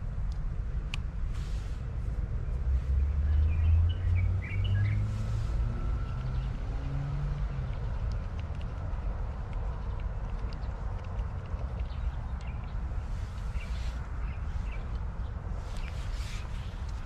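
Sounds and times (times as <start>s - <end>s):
bird chirping: 2.9s - 5.2s, 11.6s - 16.8s.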